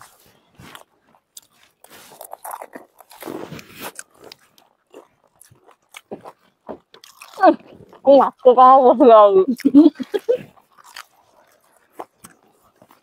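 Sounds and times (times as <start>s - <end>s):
people crunching crisp shells: 0.0s - 8.8s, 9.4s - 13.0s.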